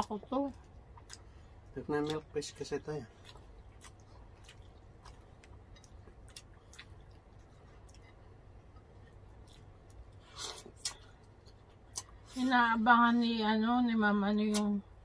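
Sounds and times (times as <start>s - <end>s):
person chewing with lip smacks: 0.7s - 1.3s, 3.1s - 12.2s.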